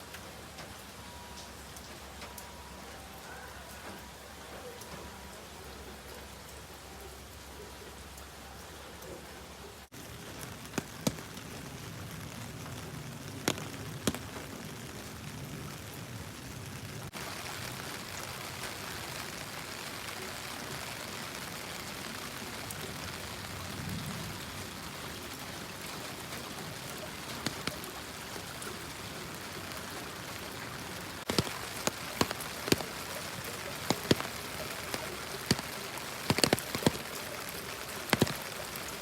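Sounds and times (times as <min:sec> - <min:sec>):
steady rain falling: 0:00.0 - 0:39.0
sharp taps: 0:13.5 - 0:14.3, 0:31.3 - 0:32.9, 0:33.8 - 0:34.3, 0:36.3 - 0:37.0, 0:38.1 - 0:38.4.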